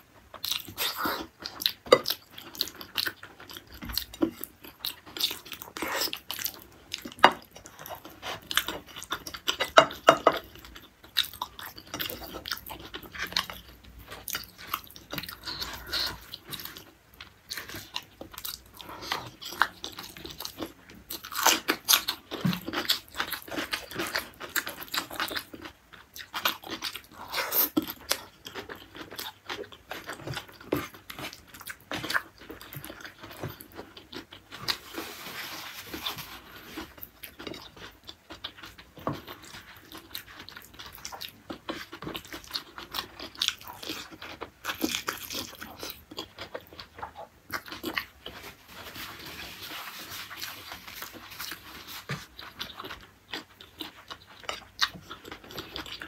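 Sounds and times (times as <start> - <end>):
person chewing and crunching: 0.0 - 56.0.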